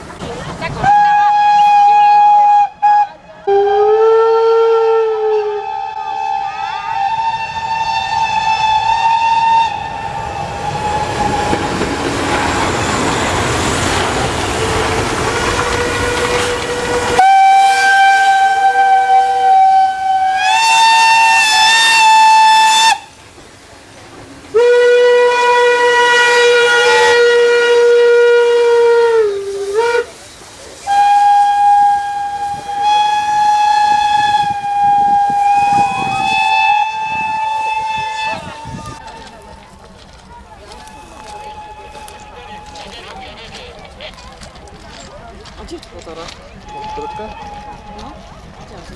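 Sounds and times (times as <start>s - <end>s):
steam locomotive whistle: 0.8s - 23.2s, 24.5s - 39.0s, 40.7s - 42.9s, 46.6s - 48.2s
steam hissing: 5.6s - 44.0s.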